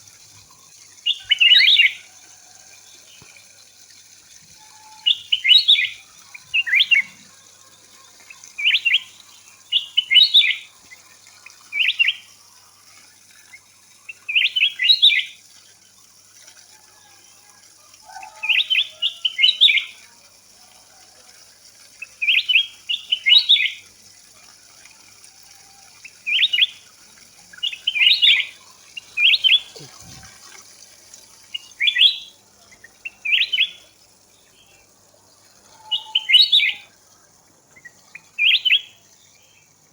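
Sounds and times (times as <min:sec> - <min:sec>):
bird chirping: 0:04.6 - 0:07.3, 0:07.9 - 0:12.3, 0:27.5 - 0:30.4, 0:31.5 - 0:34.9, 0:35.8 - 0:36.9, 0:37.8 - 0:39.8.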